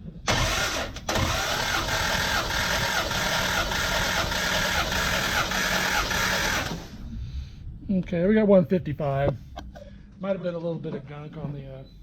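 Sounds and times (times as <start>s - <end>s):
engine cranking on starter motor: 0.3s - 7.0s.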